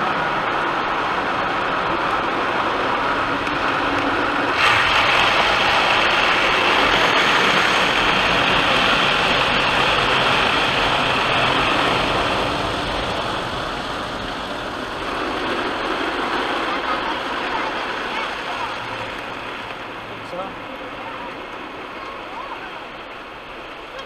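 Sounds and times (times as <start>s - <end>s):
car wash equipment rushing: 0.0s - 24.0s.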